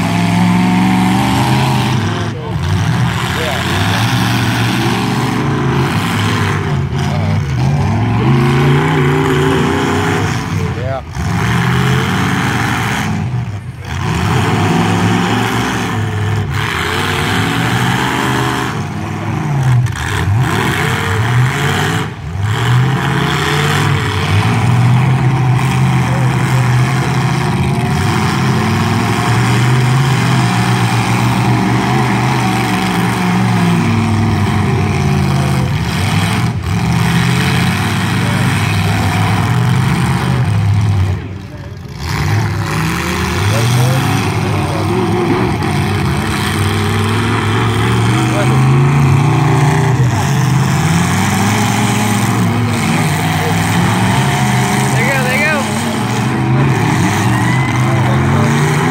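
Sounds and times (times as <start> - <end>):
truck engines revving hard: 0.0 - 58.9.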